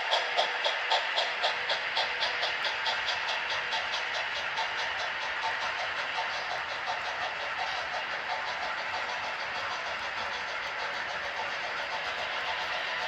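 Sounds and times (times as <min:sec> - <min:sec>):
model train whirring: 0:00.0 - 0:13.0
wheels clicking on track: 0:00.0 - 0:13.0.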